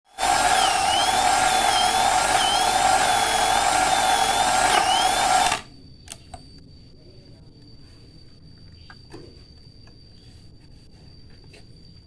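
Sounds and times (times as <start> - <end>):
power tool motor running: 0.1 - 5.7.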